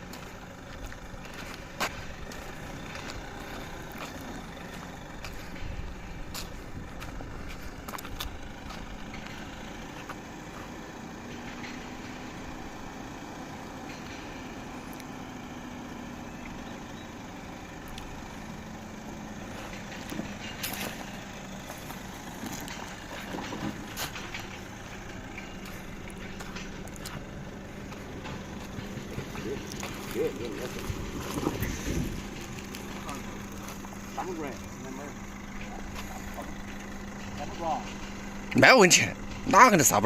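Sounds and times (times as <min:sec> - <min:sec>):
truck engine under load: 0:00.0 - 0:40.0.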